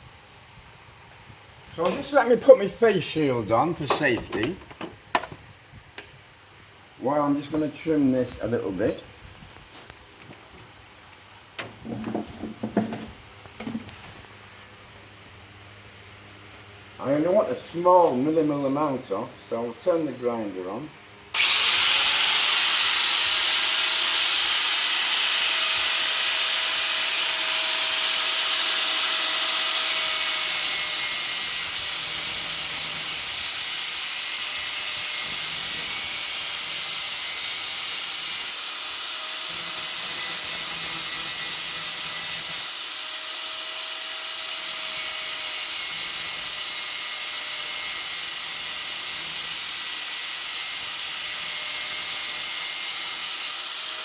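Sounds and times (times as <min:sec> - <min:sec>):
electric grinder grinding steel: 0:21.4 - 0:54.0.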